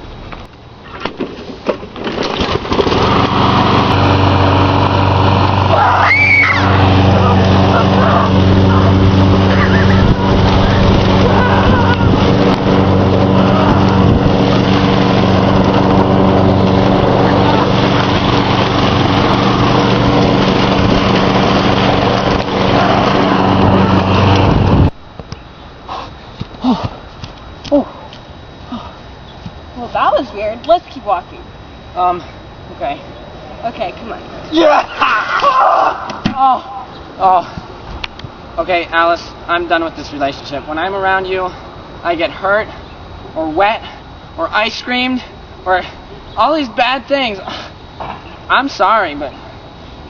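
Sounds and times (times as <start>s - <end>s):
small engine running: 2.3s - 24.9s.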